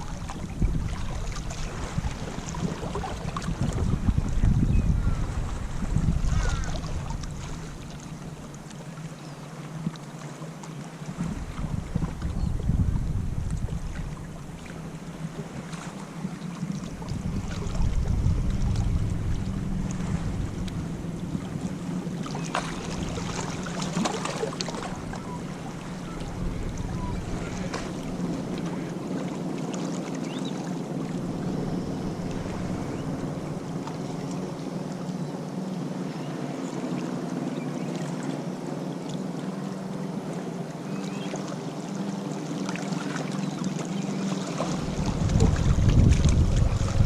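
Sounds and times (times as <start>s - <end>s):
wind on microphone: 0.0s - 8.4s, 11.0s - 29.3s, 30.8s - 35.0s, 44.4s - 47.0s
surf washing on beach: 10.9s - 40.8s, 41.4s - 47.0s.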